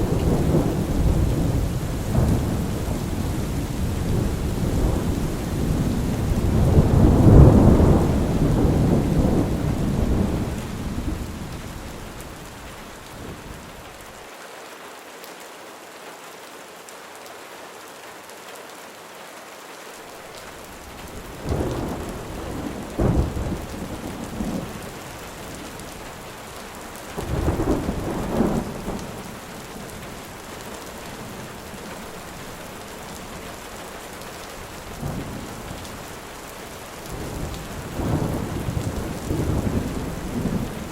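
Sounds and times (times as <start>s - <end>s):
thunder cracks: 0.0s - 12.1s, 21.1s - 24.8s
rolling thunder: 0.0s - 13.6s, 20.8s - 25.9s, 27.2s - 29.3s, 37.1s - 40.9s
heavy rain: 0.0s - 40.9s.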